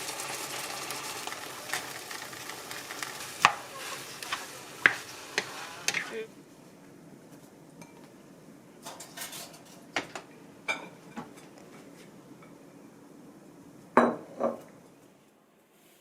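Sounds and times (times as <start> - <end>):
dishes and cutlery clinking: 7.8 - 8.1, 8.8 - 11.5.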